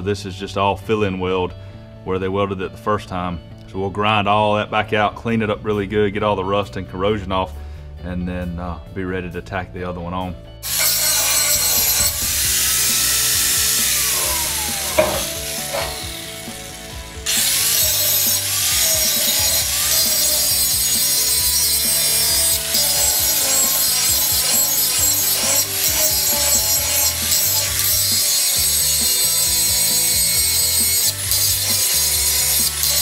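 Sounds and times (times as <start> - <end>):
angle grinder grinding steel: 10.6 - 33.0.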